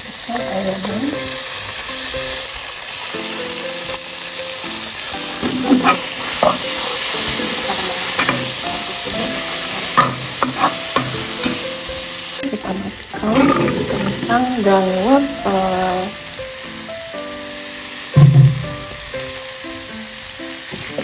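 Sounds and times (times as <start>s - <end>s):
chicken sizzling in oil: 0.0s - 21.0s
spatula scraping and knocking pan: 5.4s - 11.9s, 13.2s - 14.5s.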